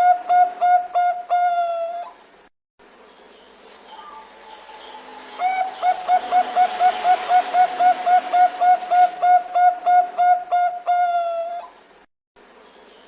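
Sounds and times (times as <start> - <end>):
dove cooing: 0.0 - 2.2, 3.9 - 11.8.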